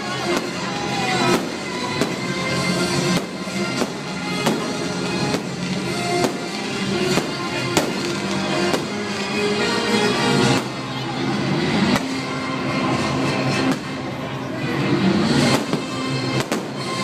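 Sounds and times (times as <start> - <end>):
fireworks bangs: 0.0 - 10.9, 15.3 - 17.0
music soundtrack: 0.0 - 17.0.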